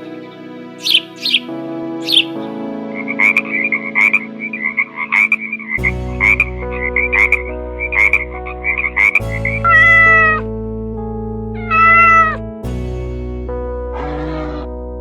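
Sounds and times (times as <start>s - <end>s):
background music with held notes: 0.0s - 15.0s
frog croaking: 0.8s - 2.4s, 3.0s - 10.4s, 11.6s - 12.4s, 13.9s - 14.8s
cat meowing: 11.7s - 12.4s.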